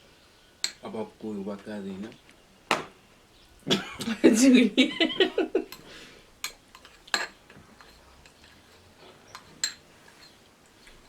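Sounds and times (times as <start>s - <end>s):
utensil clinking against dish: 0.6s - 1.0s, 5.0s - 11.0s.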